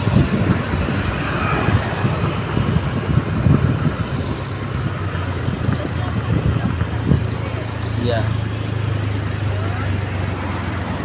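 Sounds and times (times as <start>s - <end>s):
vehicle road noise rushing: 0.0s - 11.0s.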